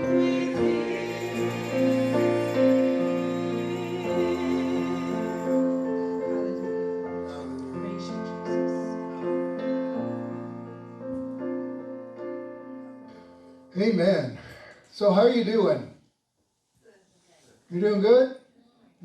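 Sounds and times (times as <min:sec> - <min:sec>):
keyboard playing slow chords: 0:00.0 - 0:13.8.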